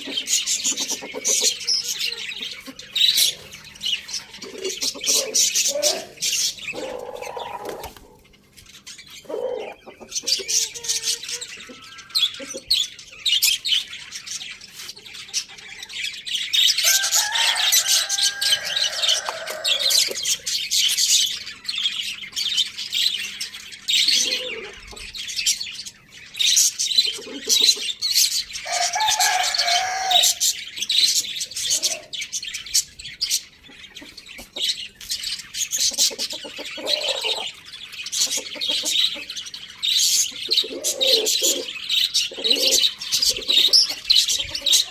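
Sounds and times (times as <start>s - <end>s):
small birds chirping: 0.0s - 44.9s
rooster crowing: 16.8s - 20.2s, 28.6s - 30.5s.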